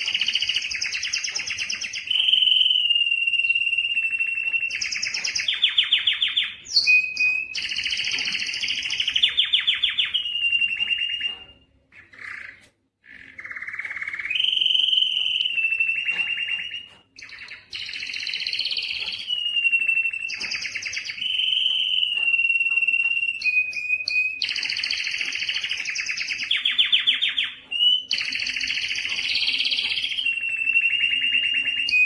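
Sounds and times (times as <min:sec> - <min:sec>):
canary singing trills and whistles: 0:00.0 - 0:32.0.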